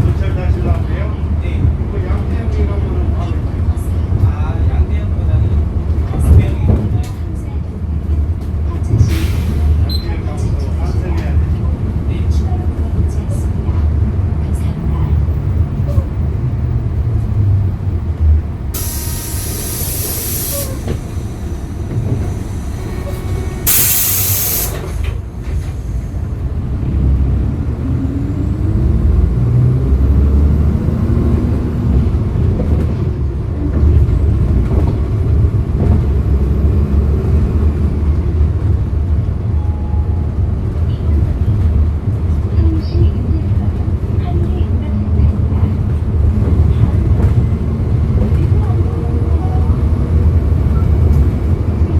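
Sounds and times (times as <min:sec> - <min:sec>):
bus engine rumbling: 0:00.0 - 0:51.9
compressed air hiss: 0:18.8 - 0:26.2.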